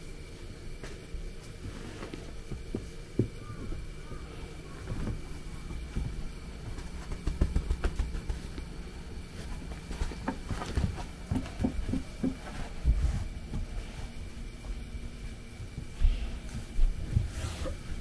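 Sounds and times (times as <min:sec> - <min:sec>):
puppy bumps and scuffles: 0:04.8 - 0:08.7, 0:09.3 - 0:18.0.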